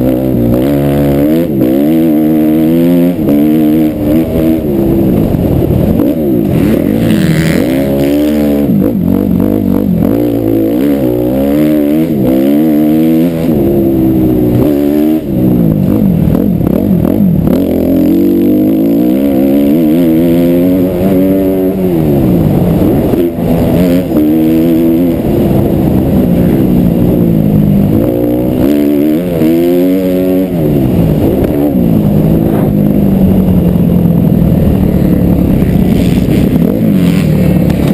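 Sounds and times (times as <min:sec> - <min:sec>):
motocross bike engine revving: 0:00.0 - 0:37.9.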